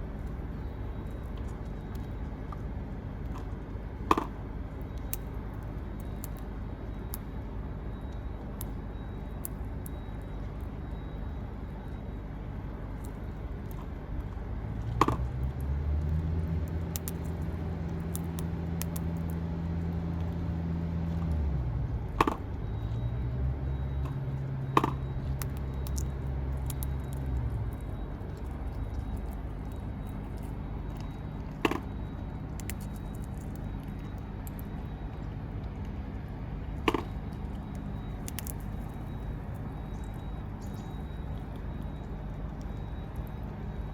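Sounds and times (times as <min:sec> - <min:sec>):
low engine hum: 0:10.0 - 0:43.9.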